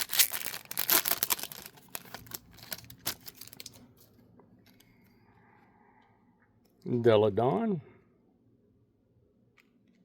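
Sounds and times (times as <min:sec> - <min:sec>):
plastic wrapper crinkling: 0:00.0 - 0:04.1.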